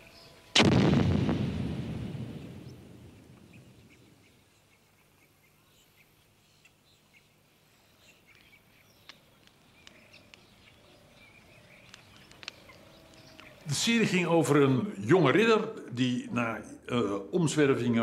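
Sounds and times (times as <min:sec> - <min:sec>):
gun blast rumble: 0:00.6 - 0:04.0.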